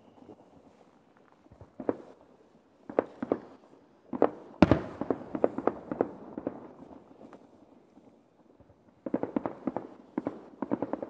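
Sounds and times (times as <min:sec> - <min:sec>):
fireworks bursting: 0:02.9 - 0:07.2.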